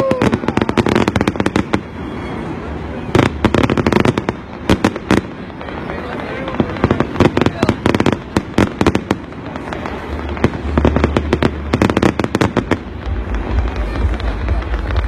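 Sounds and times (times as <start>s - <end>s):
fireworks bangs and crackles: 0.0s - 15.0s
low rumble: 8.2s - 15.0s.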